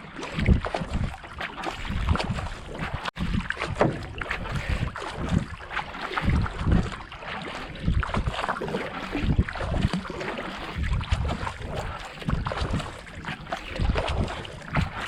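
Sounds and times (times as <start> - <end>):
kayak paddle strokes splashing: 0.0 - 15.0
wind buffeting microphone: 0.3 - 5.6, 6.2 - 7.0, 9.1 - 10.0, 10.7 - 15.0.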